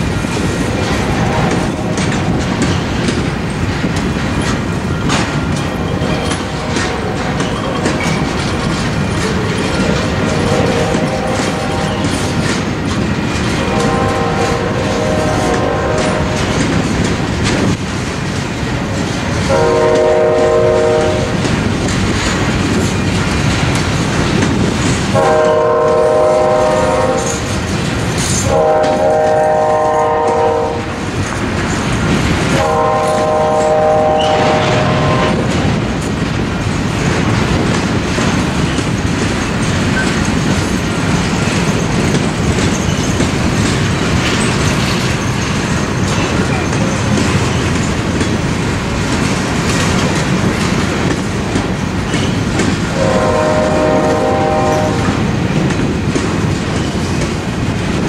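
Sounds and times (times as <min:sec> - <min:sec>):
freight train rumbling past: 0:00.0 - 0:58.0
wheels clacking over rail joints: 0:00.0 - 0:58.0
locomotive horn blasts: 0:06.0 - 0:07.4, 0:10.1 - 0:12.1, 0:13.6 - 0:16.5, 0:19.5 - 0:21.4, 0:25.1 - 0:27.5, 0:28.4 - 0:31.0, 0:32.5 - 0:35.5, 0:52.9 - 0:55.3.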